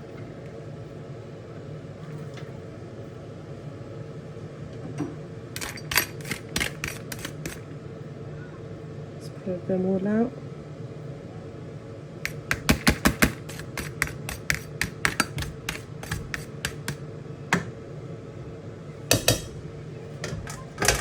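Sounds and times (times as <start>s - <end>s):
spoon scraping pot: 5.6s - 7.6s, 12.3s - 17.0s
metal spoon knocking on pot: 19.1s - 19.6s.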